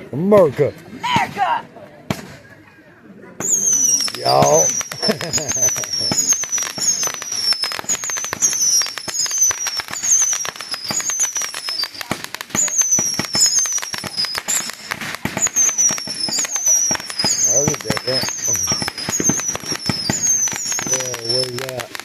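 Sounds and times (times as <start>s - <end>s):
fireworks bangs and crackles: 0.0s - 2.6s, 3.4s - 22.0s
high falling whistle: 3.5s - 11.9s, 15.4s - 21.7s.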